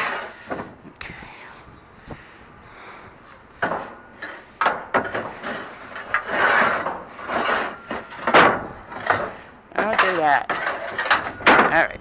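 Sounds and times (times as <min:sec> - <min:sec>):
scrap steel knocks and clanks: 0:00.0 - 0:00.8, 0:03.2 - 0:12.0.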